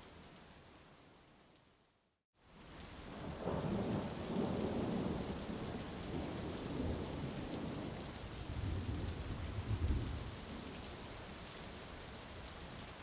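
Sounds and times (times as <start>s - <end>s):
thunder rumbling: 8.5s - 10.3s.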